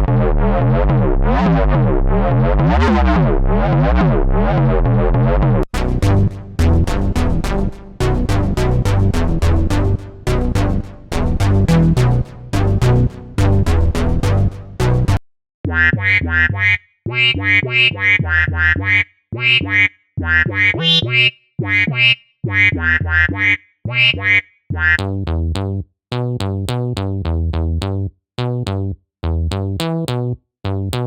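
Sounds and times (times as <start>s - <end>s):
synth bass line: 0.0s - 31.0s
choppy synth notes: 5.7s - 24.2s
synthesizer with sweeping filter: 5.8s - 15.2s.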